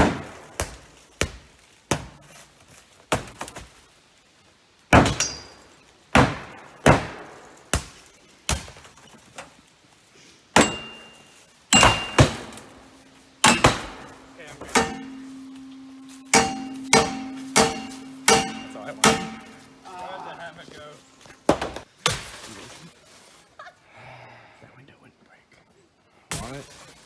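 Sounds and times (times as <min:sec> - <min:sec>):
hand tools striking car body: 0:10.6 - 0:19.9
metallic ring: 0:10.6 - 0:21.2.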